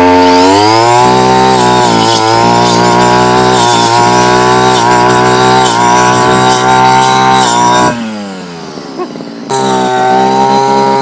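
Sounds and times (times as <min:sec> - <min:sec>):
brush cutter engine at high revs: 0:00.0 - 0:11.0.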